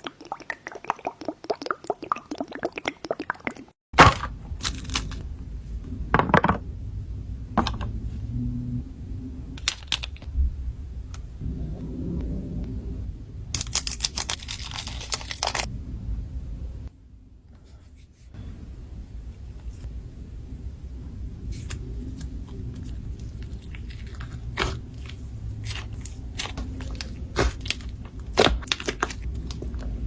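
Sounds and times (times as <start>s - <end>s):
low rumble: 4.2s - 17.5s, 18.4s - 30.0s
slime crackling and popping: 22.7s - 29.9s.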